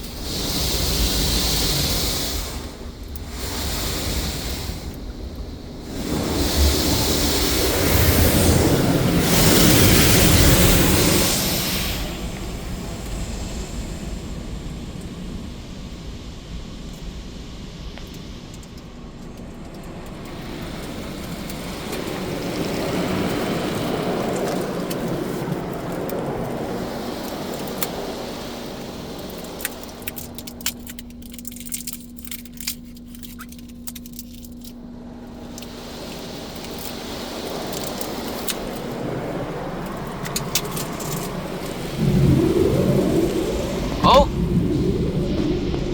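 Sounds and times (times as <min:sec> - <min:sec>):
car wash spraying: 0:00.0 - 0:45.9
steady hum: 0:00.0 - 0:45.9
sharp ticks: 0:29.2 - 0:34.7.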